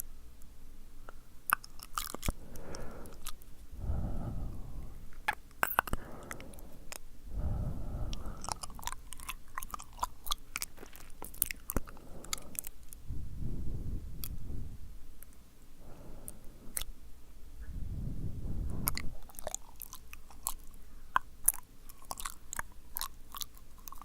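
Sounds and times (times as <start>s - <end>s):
wet lip and tongue clicks: 1.1s - 3.5s, 5.1s - 7.1s, 8.1s - 13.0s, 16.2s - 16.9s, 18.7s - 24.0s
breathy swells: 2.4s - 5.2s, 5.8s - 8.9s.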